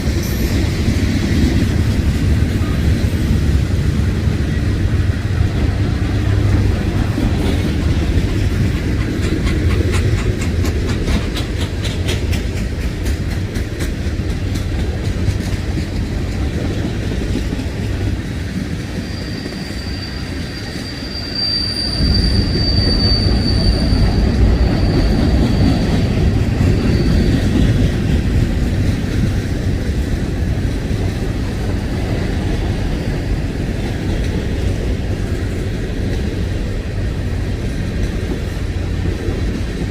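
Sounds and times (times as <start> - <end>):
wheels clicking over rail joints: 0.0 - 19.1
freight train rolling past: 0.0 - 39.9
high wheel squeal: 18.8 - 27.9.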